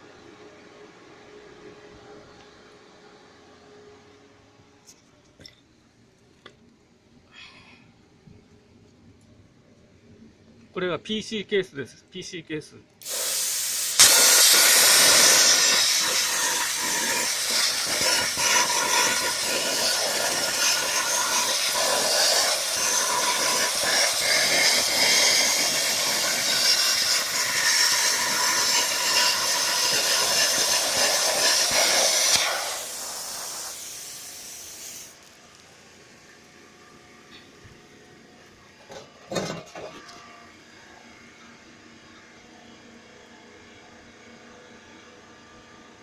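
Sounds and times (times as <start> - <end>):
plasma cutter hissing and crackling: 13.0 - 35.3.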